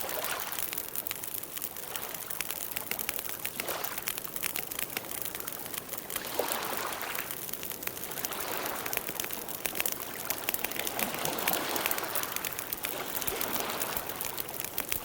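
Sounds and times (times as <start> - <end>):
campfire crackling and popping: 0.0 - 15.0
fire hissing: 0.0 - 15.0.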